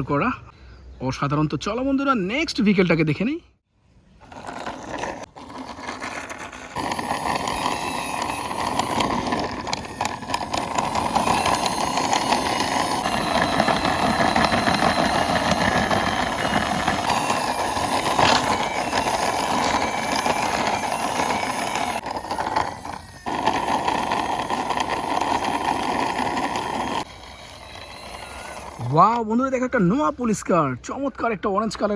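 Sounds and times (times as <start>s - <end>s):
toy car wheels grinding on wall: 4.2s - 29.6s.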